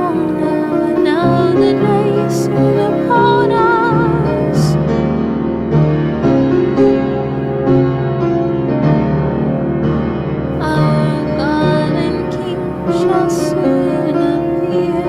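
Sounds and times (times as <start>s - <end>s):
slow solo piano music: 0.0s - 15.0s.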